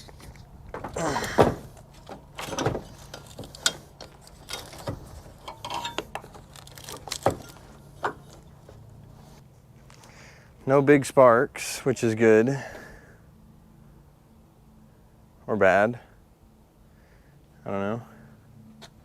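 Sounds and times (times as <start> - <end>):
metallic clicks and knocks: 0.7 - 8.5.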